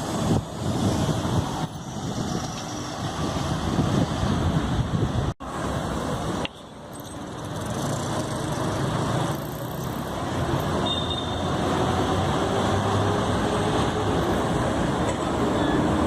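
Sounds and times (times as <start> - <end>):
road traffic rumble: 0.0 - 16.0
vehicle approaching: 7.0 - 16.0.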